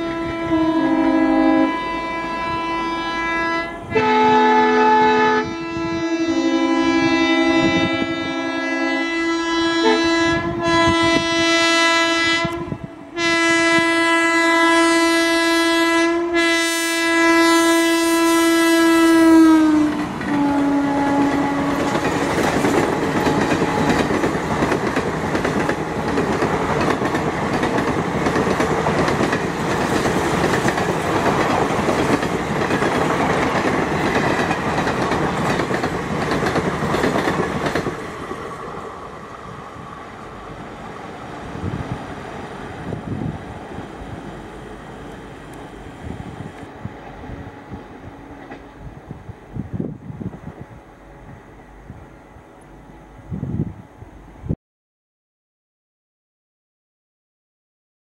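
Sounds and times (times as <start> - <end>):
locomotive horn blasts: 0.0 - 22.2
train coaches rushing past: 19.0 - 52.6.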